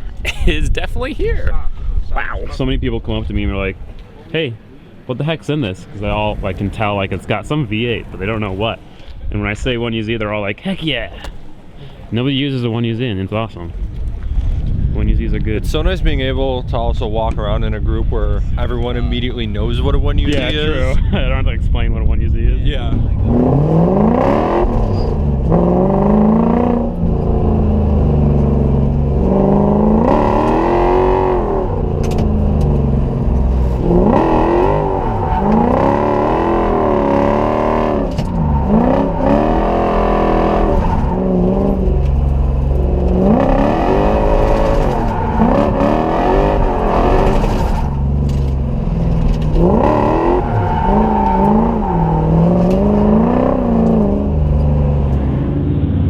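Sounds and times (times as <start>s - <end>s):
engine revving hard: 23.2s - 42.0s, 42.8s - 48.0s, 49.5s - 56.0s.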